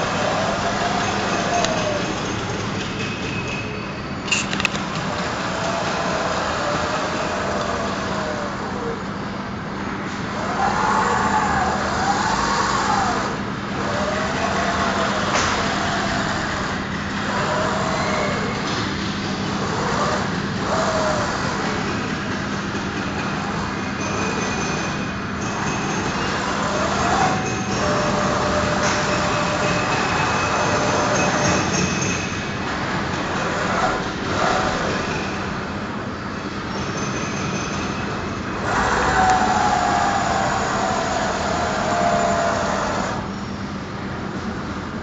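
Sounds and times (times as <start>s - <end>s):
servo motors whining: 0.0s - 2.4s, 4.3s - 9.1s, 10.4s - 18.8s, 19.5s - 21.8s, 26.3s - 31.9s, 38.6s - 43.3s
steady machine hum: 0.0s - 45.0s.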